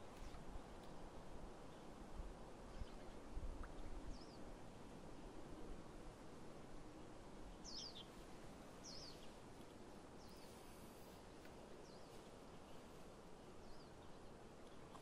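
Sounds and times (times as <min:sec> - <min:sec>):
quiet wind noise: 0:00.0 - 0:15.0
bird chirping: 0:07.6 - 0:08.2, 0:08.8 - 0:09.4.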